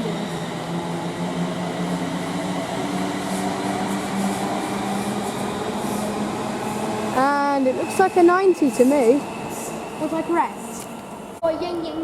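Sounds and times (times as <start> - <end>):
rumbling rail noise: 0.0 - 12.0.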